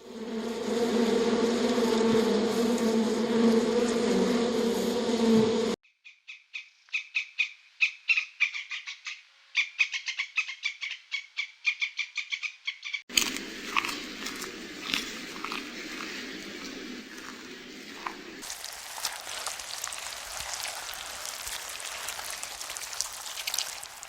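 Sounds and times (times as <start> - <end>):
insect-like buzz: 0.0 - 5.8, 13.2 - 24.0.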